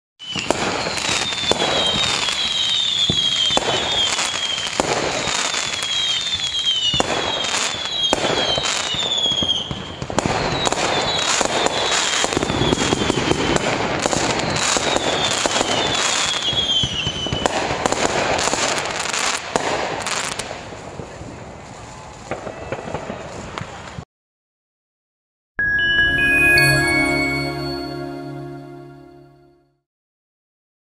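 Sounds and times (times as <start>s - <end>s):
falling firework whistles: 0.2s - 20.4s
fireworks bangs and crackling: 0.2s - 24.0s.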